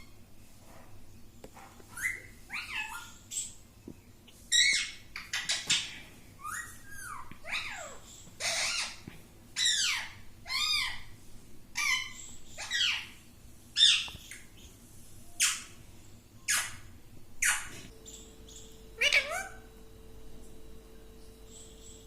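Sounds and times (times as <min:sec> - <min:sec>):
parrot squawking: 0:01.9 - 0:03.5, 0:04.5 - 0:09.0, 0:09.6 - 0:11.1, 0:11.8 - 0:13.2, 0:17.4 - 0:19.7.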